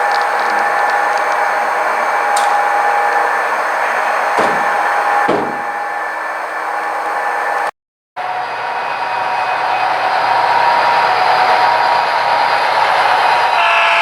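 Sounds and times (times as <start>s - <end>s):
sharp clicks: 0.0s - 3.3s
model train whirring hum: 0.0s - 14.0s.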